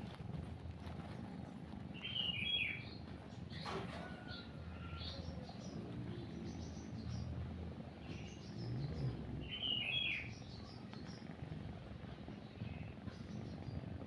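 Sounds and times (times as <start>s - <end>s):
small birds chirping: 0.4s - 14.0s
cat purring: 5.6s - 14.0s.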